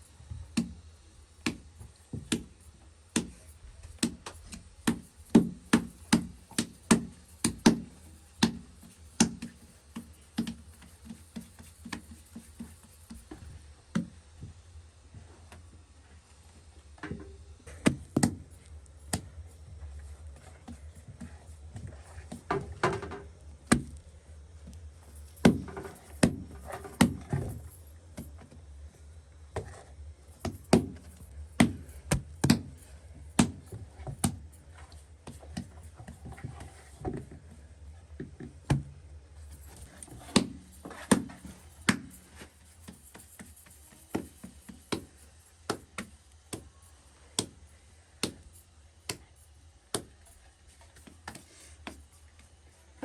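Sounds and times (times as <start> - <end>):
low steady hum: 0.0 - 53.0
objects knocking and clattering: 20.6 - 24.0, 25.1 - 28.3.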